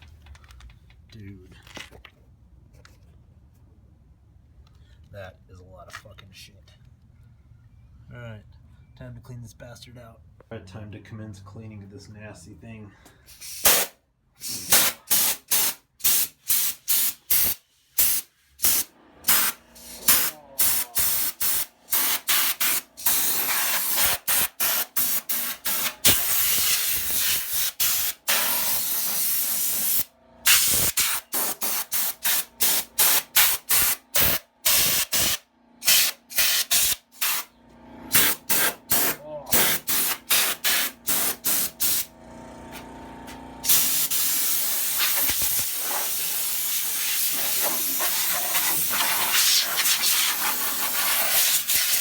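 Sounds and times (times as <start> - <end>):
compressed air hissing blasts: 13.2 - 37.5, 38.1 - 42.1, 43.6 - 52.0.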